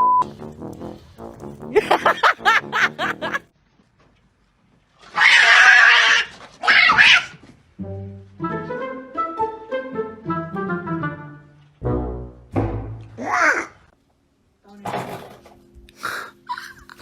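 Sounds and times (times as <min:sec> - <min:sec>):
music: 0:00.2 - 0:03.4, 0:07.8 - 0:13.2, 0:14.7 - 0:17.0
animal calling in wavering cries: 0:05.1 - 0:07.4.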